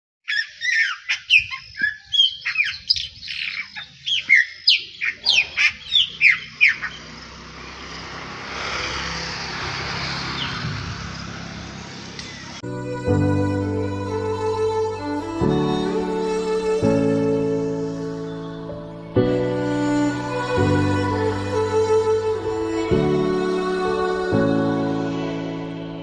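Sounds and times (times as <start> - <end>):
birds squawking and chirping: 0.2 - 12.6
steady rushing noise: 7.0 - 12.6.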